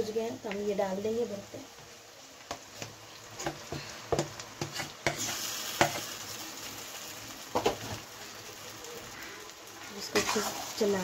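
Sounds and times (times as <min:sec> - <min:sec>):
mash frying in hot oil: 0:00.0 - 0:11.0
spatula and bowl scraping pan: 0:02.8 - 0:06.1, 0:09.8 - 0:11.0.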